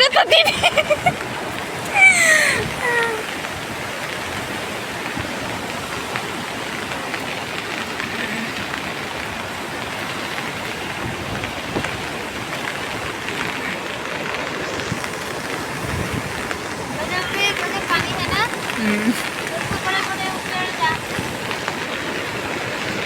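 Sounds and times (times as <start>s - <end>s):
river water rushing: 0.0s - 23.0s.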